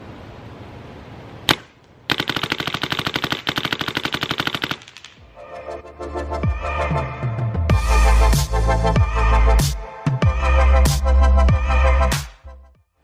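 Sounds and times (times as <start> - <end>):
paintball marker firing: 1.5 - 5.2
electronic music: 5.3 - 12.7.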